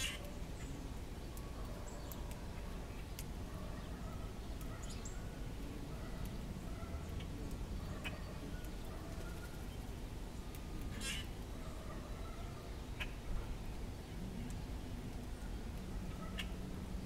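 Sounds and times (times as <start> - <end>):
small ticks: 1.3 - 3.3.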